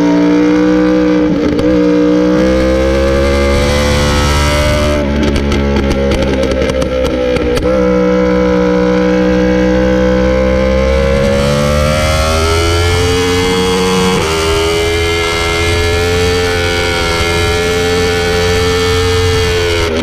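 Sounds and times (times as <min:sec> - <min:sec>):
motorcycle engine revving: 0:00.0 - 0:20.0
engine crackling pops: 0:04.7 - 0:07.7.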